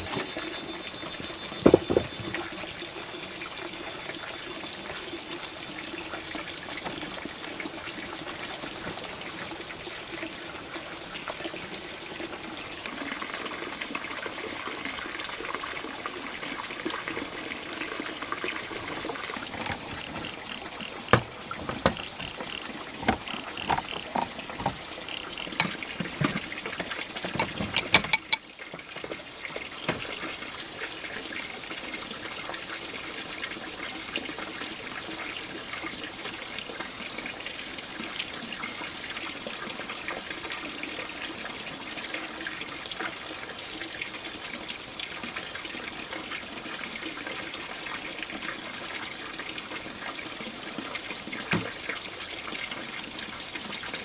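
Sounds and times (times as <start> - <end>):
water trickling: 0.0 - 54.0
sharp knocks and ringing clinks: 25.5 - 25.9, 26.8 - 28.4.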